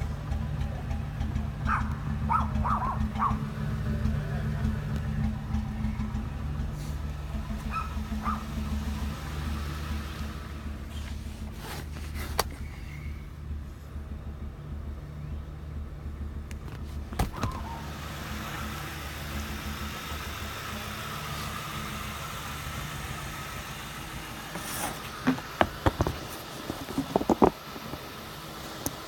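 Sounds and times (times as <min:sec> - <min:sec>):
car engine running with misfire: 0:00.0 - 0:29.0.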